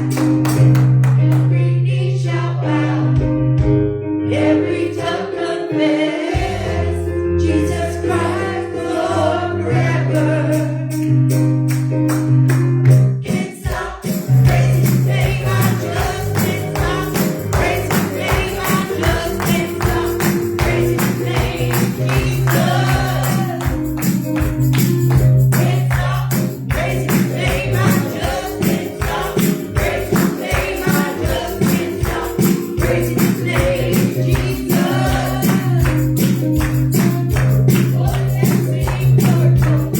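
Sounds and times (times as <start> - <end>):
voices singing gospel: 4.3 - 10.9, 13.2 - 24.6, 25.2 - 39.9
tambourine shaking: 13.3 - 39.9.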